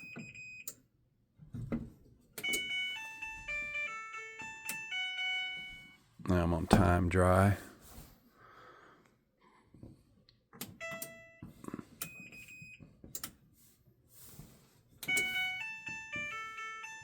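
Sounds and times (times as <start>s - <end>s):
control panel beeping: 2.4s - 6.0s, 10.7s - 11.4s, 15.0s - 17.0s.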